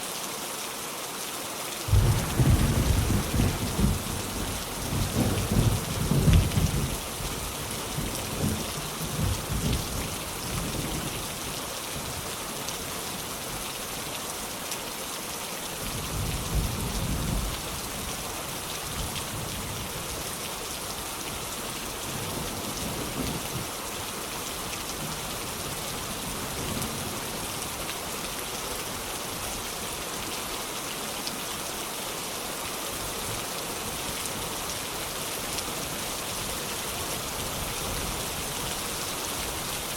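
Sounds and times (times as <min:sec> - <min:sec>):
heavy rain: 0:00.0 - 0:39.9
rolling thunder: 0:01.9 - 0:09.9.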